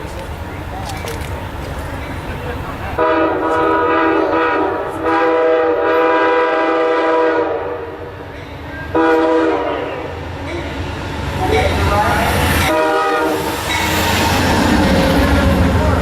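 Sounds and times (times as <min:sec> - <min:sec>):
train rumbling past: 0:00.0 - 0:16.0
train air horn blasts: 0:03.0 - 0:08.1, 0:08.9 - 0:10.1, 0:12.7 - 0:13.6.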